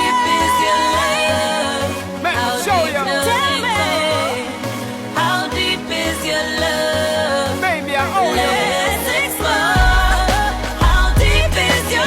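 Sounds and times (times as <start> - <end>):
steady bass beat: 9.4 - 12.0.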